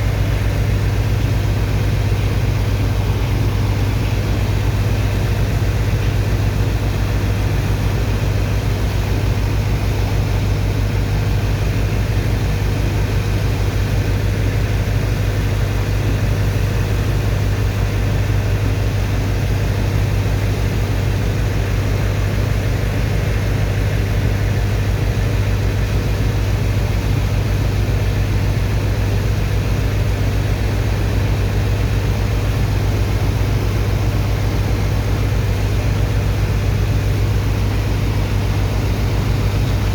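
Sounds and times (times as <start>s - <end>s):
diesel engine droning: 23.5s - 39.9s.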